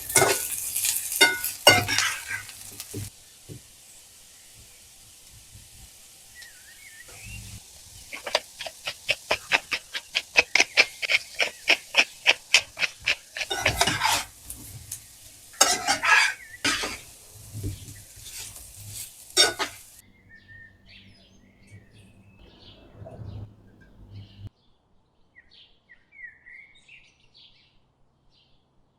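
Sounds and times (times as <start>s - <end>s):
utensil scraping clatters: 0.0s - 3.1s, 7.1s - 20.1s
kitchen utensil working food: 0.0s - 24.5s
faint bird chirps: 6.3s - 12.3s, 20.0s - 24.5s.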